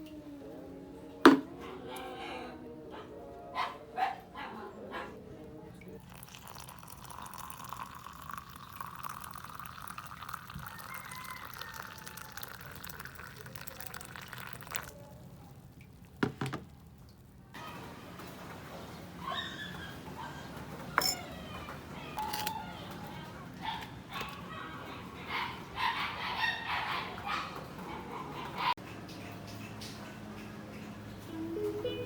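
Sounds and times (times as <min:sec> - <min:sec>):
water pouring into a container: 0:05.8 - 0:16.2.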